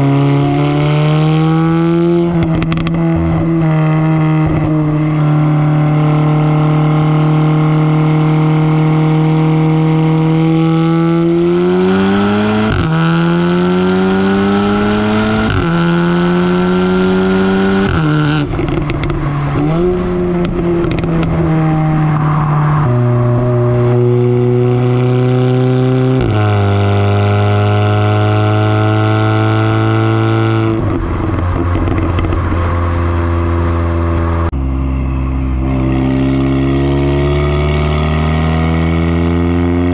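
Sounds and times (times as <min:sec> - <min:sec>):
car exhaust while driving: 0:00.0 - 0:39.9.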